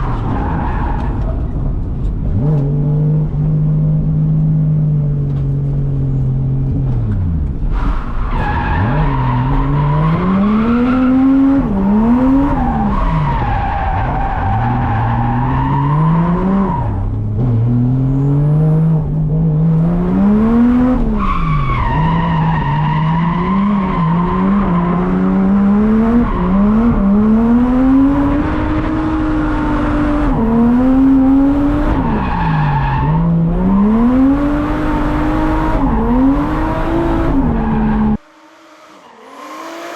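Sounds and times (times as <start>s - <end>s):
tires squealing: 0.0s - 1.8s, 7.6s - 17.4s, 20.4s - 39.9s
car engine revving: 0.0s - 39.9s.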